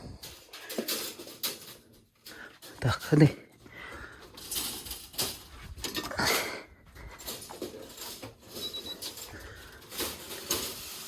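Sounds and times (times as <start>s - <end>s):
rabbits scrabbling in cages: 0.1s - 11.0s.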